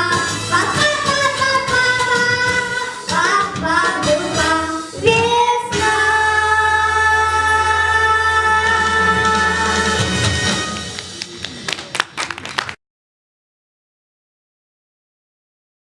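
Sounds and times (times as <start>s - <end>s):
girl singing: 0.0s - 10.1s
backing track music: 0.0s - 12.1s.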